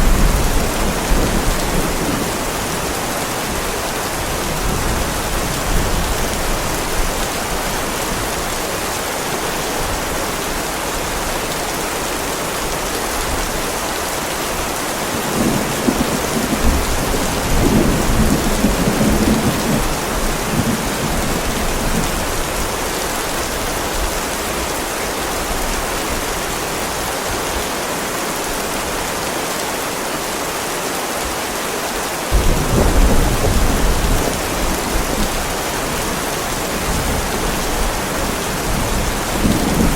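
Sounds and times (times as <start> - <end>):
thunder rumbling: 0.0 - 7.1, 15.1 - 22.3, 32.3 - 39.9
heavy rain on a driveway: 0.0 - 39.9.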